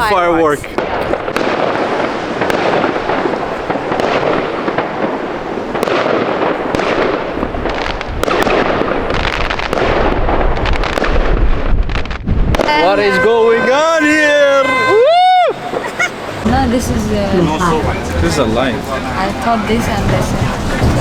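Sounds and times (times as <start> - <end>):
firecracker bangs: 0.0 - 15.1
fireworks crackling: 0.0 - 21.0.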